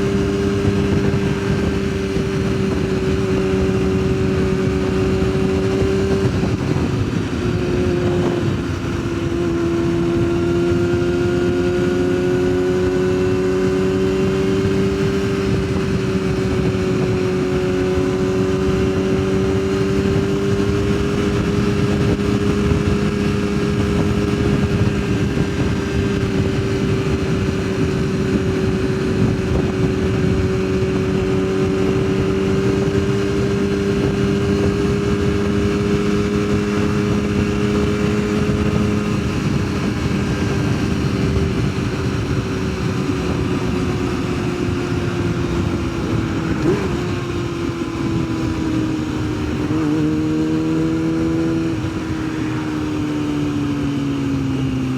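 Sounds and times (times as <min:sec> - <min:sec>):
motorcycle engine cruising: 0:00.0 - 0:54.9
wind rushing over microphone: 0:00.0 - 0:54.9.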